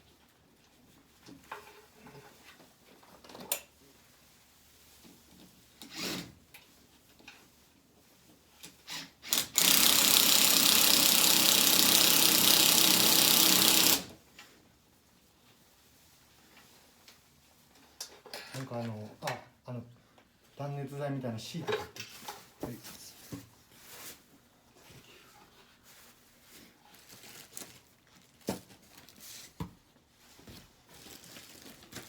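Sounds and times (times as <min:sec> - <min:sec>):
power tool motor running: 0:09.3 - 0:14.1.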